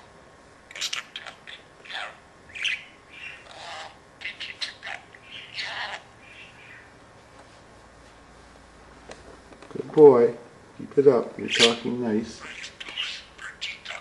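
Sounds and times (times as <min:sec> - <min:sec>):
budgerigar chattering: 0:00.7 - 0:06.9, 0:11.5 - 0:14.0.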